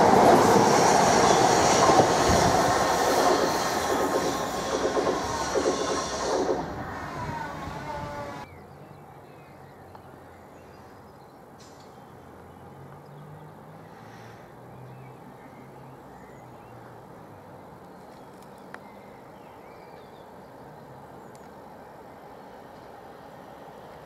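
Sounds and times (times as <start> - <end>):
electric train hum: 0.0 - 8.5.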